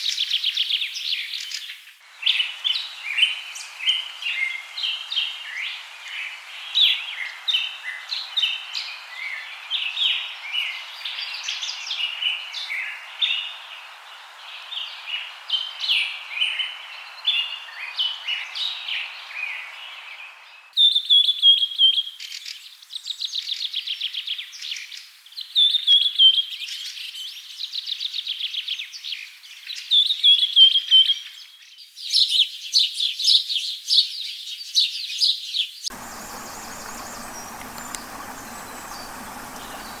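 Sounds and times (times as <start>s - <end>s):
background hiss: 35.9s - 40.0s
birds chirping and calling: 35.9s - 40.0s
birds giving fast falling trills: 35.9s - 40.0s.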